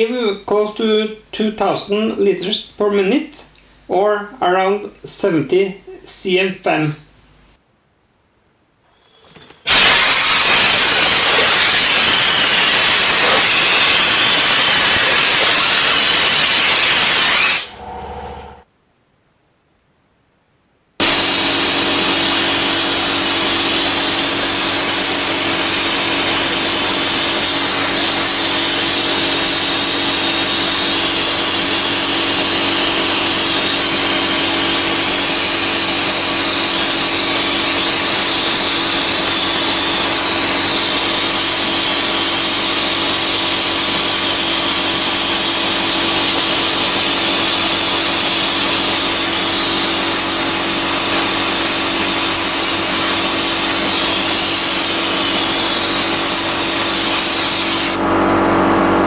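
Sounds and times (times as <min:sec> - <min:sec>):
sandblaster rushing hiss: 0:08.9 - 0:18.6, 0:21.0 - 0:58.0.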